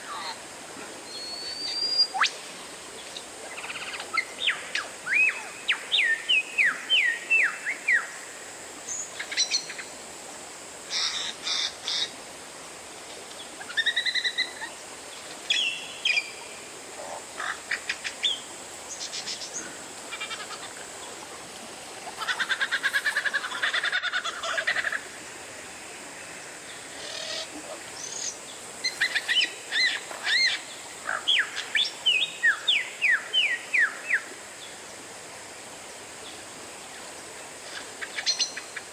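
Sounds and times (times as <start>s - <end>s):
background hiss: 0.0s - 38.9s.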